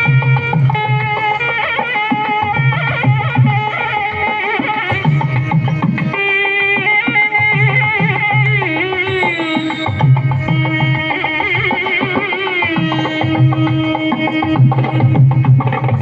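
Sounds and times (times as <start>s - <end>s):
melody of sliding notes: 0.0s - 15.0s.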